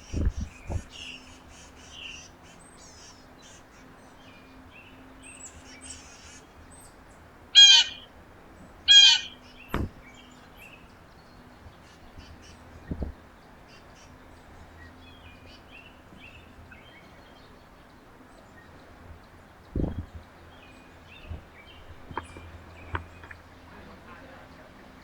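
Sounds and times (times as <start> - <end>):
small birds chirping: 0.0 - 25.0
harsh crow calls: 7.6 - 8.1, 8.9 - 9.5.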